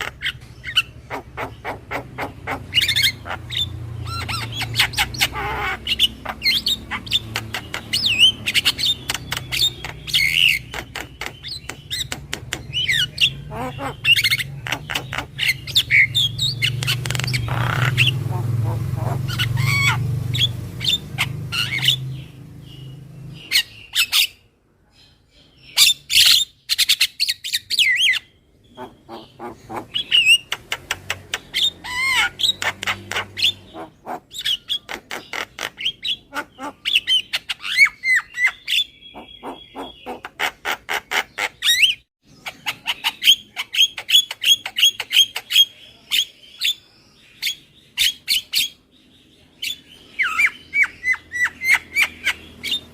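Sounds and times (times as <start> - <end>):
myna squawking and whistling: 0.0 - 22.0, 28.8 - 45.7.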